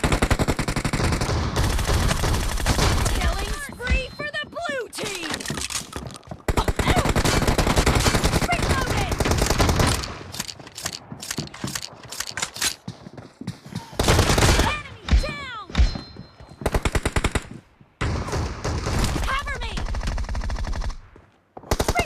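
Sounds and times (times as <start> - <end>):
video game gunfire: 6.5 - 12.8, 14.0 - 16.0.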